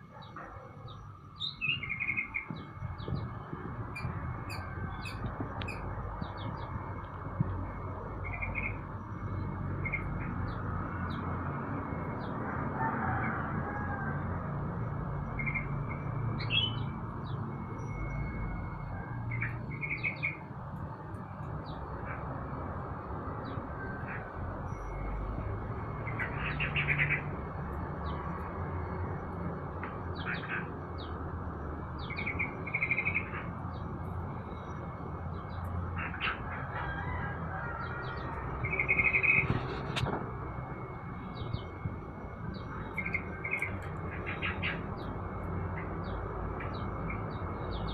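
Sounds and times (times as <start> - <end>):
songbirds chirping: 0.0 - 14.1, 15.0 - 40.0, 40.6 - 47.9.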